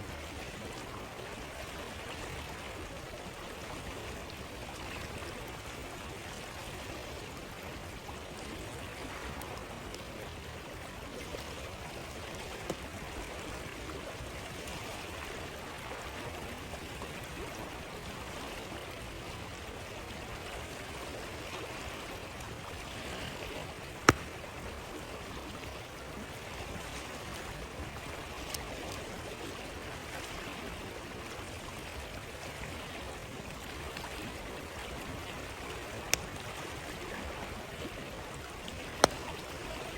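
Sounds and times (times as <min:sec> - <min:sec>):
river water flowing: 0:00.0 - 0:39.9
campfire crackling pops: 0:24.0 - 0:24.6, 0:38.7 - 0:39.8.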